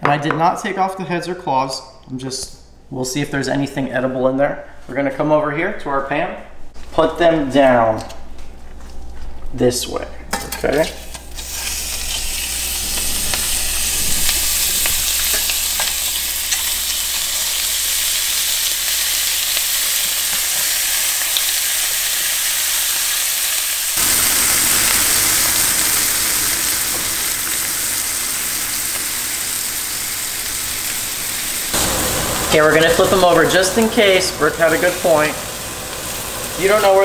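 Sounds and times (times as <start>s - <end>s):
shrimp sizzling in butter: 10.9s - 37.0s.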